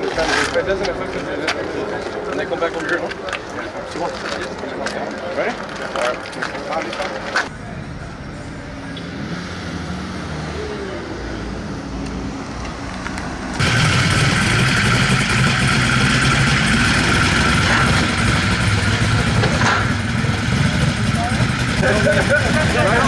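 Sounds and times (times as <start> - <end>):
cars launching at full throttle: 8.1 - 23.0
cars idling: 13.4 - 23.0.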